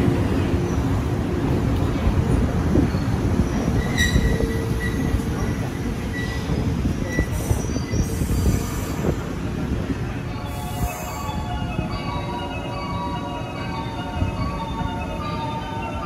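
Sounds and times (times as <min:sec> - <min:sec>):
train wheels rumbling on rail: 0:00.0 - 0:16.0
high wheel squeals: 0:02.9 - 0:05.4.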